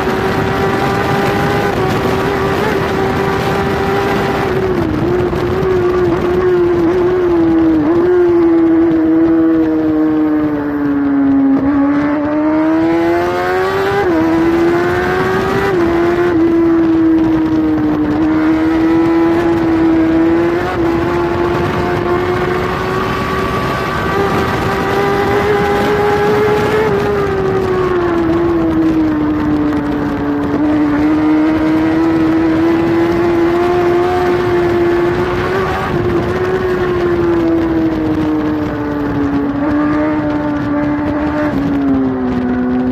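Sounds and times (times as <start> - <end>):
motorcycle engine at high revs: 0.0 - 42.9
rush of wind: 0.0 - 42.9.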